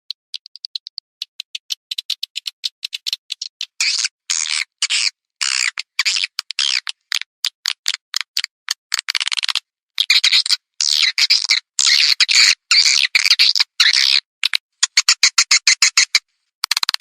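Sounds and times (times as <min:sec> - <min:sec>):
swiftlet clicks: 0:00.1 - 0:03.8.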